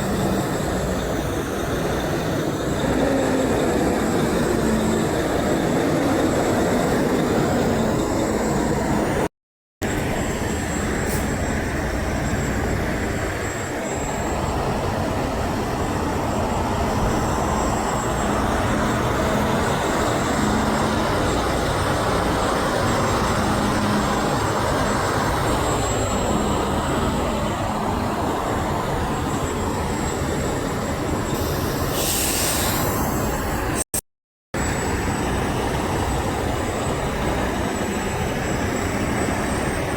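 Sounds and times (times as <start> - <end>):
heavy vehicles rumbling past: 0.0 - 9.3.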